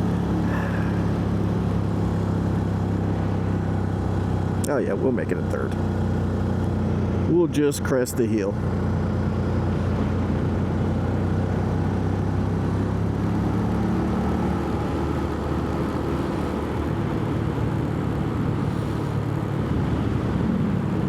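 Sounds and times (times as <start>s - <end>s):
wind rushing over microphone: 16.8s - 21.0s.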